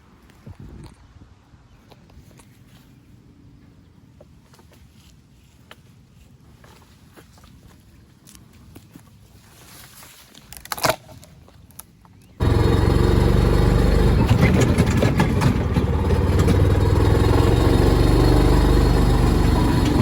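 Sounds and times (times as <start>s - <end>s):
engine running loudly: 12.4s - 20.0s.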